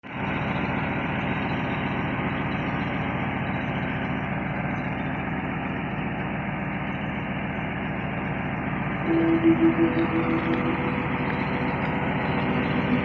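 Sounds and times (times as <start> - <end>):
car engine idling: 0.1 - 13.0.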